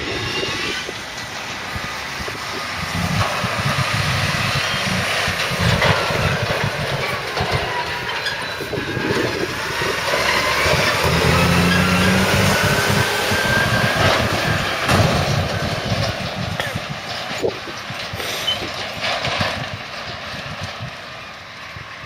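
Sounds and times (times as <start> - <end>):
diesel engine drone: 0.0 - 22.0.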